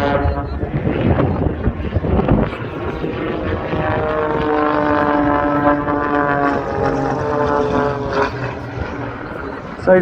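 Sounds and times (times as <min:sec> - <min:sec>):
light aircraft engine droning: 0:00.0 - 0:10.0.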